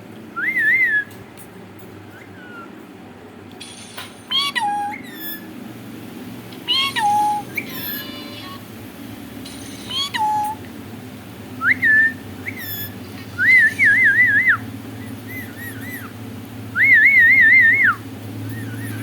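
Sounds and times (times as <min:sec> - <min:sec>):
parrot whistling and trilling: 0:00.4 - 0:01.2, 0:02.1 - 0:02.8, 0:03.6 - 0:05.6, 0:06.6 - 0:08.6, 0:09.5 - 0:10.7, 0:11.6 - 0:19.0.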